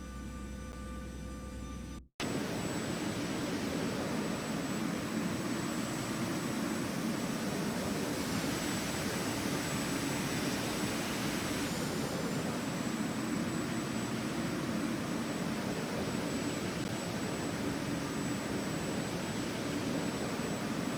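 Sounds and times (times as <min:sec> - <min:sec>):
music: 0:00.0 - 0:02.1
jet airliner engines rushing: 0:02.2 - 0:20.9.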